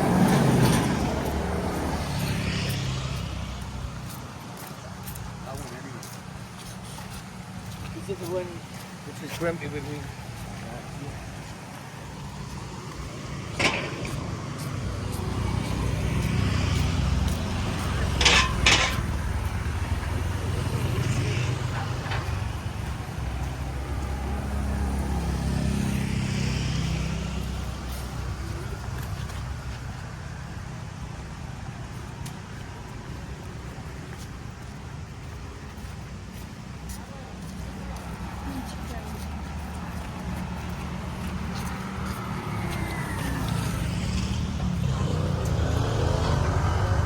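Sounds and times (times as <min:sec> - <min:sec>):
vehicle engine rumbling past: 0:00.0 - 0:04.4, 0:09.5 - 0:31.9, 0:37.9 - 0:47.0.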